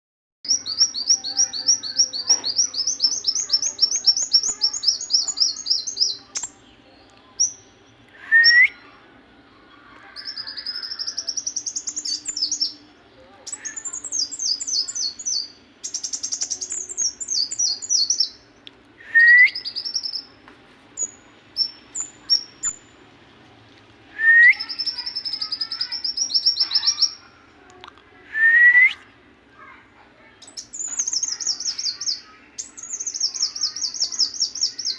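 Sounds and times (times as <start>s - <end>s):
songbird trilling: 0.5s - 6.6s, 10.2s - 12.8s, 13.5s - 18.4s, 24.5s - 27.2s, 30.4s - 34.9s
short upslurred whistles: 8.2s - 8.8s, 19.0s - 19.8s, 24.2s - 24.8s, 28.3s - 29.0s.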